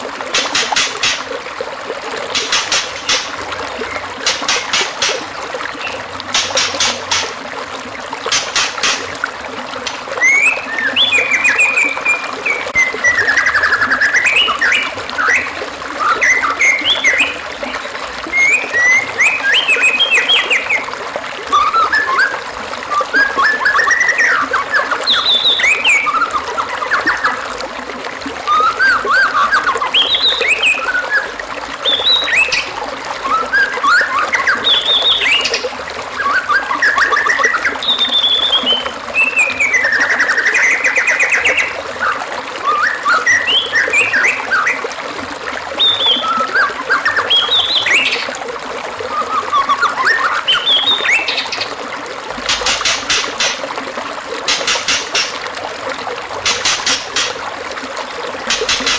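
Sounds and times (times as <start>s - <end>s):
bird singing whistled phrases: 10.2s - 17.4s, 18.3s - 20.9s, 21.5s - 27.4s, 28.5s - 32.6s, 33.2s - 35.6s, 36.2s - 44.8s, 45.8s - 48.2s, 49.1s - 51.7s.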